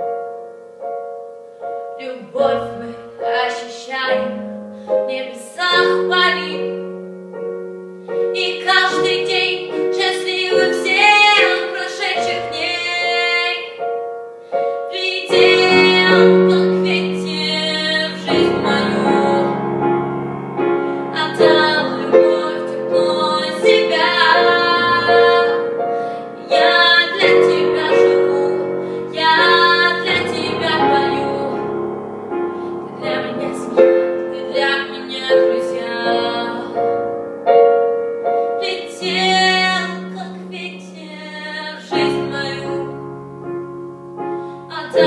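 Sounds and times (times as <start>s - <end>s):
piano accompaniment: 0.0s - 45.0s
woman singing: 2.0s - 7.0s, 8.2s - 13.9s, 14.8s - 19.9s, 21.1s - 32.0s, 32.8s - 37.2s, 38.5s - 43.0s, 44.7s - 45.0s.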